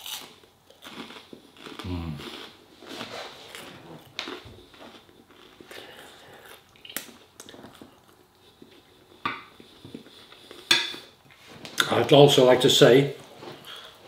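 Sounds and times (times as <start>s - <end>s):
man chewing: 0.0s - 11.4s.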